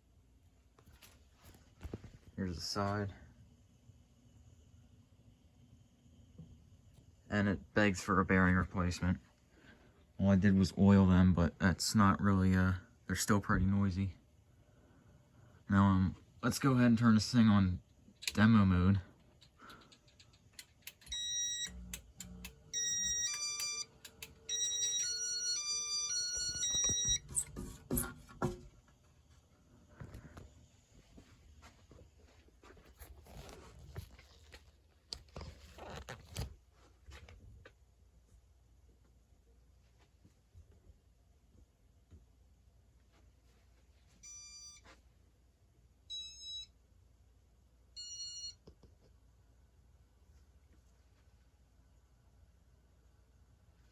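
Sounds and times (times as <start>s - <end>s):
fan control short beeps: 22.7s - 23.9s.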